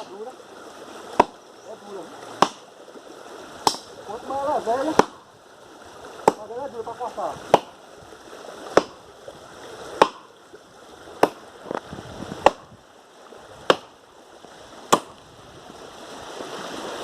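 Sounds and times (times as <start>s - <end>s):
axe chopping wood: 1.1s - 1.4s, 2.4s - 2.7s, 3.6s - 3.9s, 4.8s - 5.3s, 6.2s - 6.5s, 7.5s - 7.8s, 8.7s - 9.0s, 9.9s - 10.3s, 11.2s - 11.4s, 12.4s - 12.7s, 13.6s - 14.0s, 14.9s - 15.2s.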